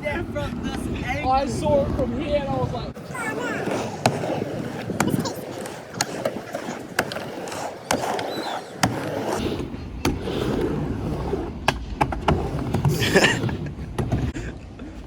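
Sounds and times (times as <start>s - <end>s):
wind rumble on microphone: 0.0s - 3.0s
wheels rolling over concrete: 0.0s - 15.0s
skateboard clacks and knocks: 3.0s - 10.3s.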